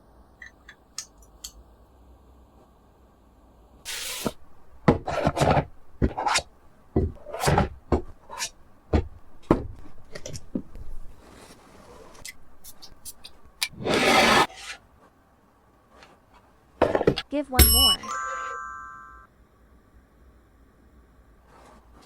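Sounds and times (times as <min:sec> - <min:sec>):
packaging scrapes and knocks: 0:03.9 - 0:14.8.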